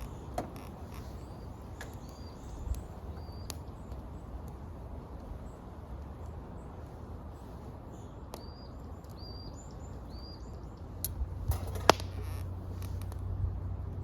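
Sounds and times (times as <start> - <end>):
bird whistling calls: 0.0 - 3.6
low background rumble: 0.0 - 14.0
sharp clicks and knocks: 11.0 - 13.2.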